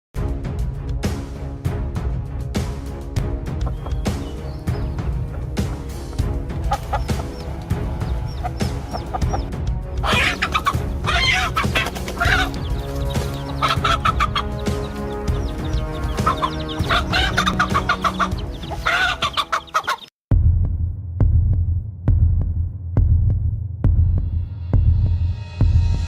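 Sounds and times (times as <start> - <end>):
background music: 0.2 - 20.1
low throbbing hum: 3.5 - 18.8
chickens clucking: 3.6 - 20.1.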